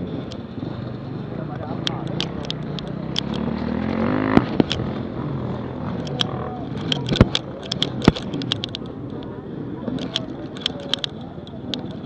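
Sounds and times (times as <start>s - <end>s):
sharp clicks and knocks: 0.2s - 0.5s, 1.5s - 5.1s, 5.7s - 12.0s
dirt bike engine revving: 2.1s - 6.4s.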